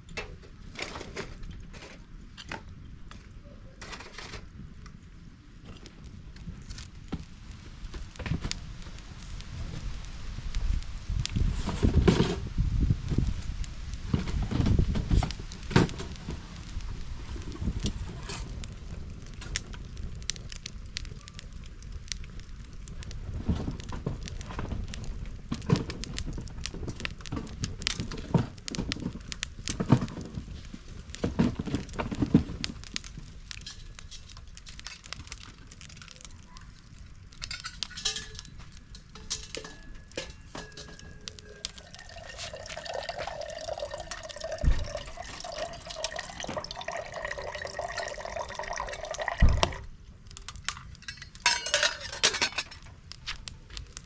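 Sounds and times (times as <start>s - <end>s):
knocks and clinks: 37.4s - 49.8s, 51.0s - 52.9s
liquid pouring into vessel: 41.6s - 49.8s.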